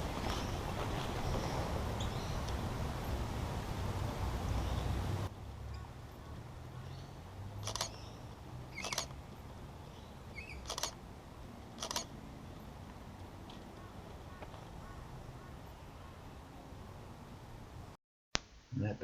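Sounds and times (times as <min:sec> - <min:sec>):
camera shutter double click: 0:07.6 - 0:08.0, 0:08.8 - 0:09.1, 0:10.6 - 0:11.0, 0:11.8 - 0:12.1.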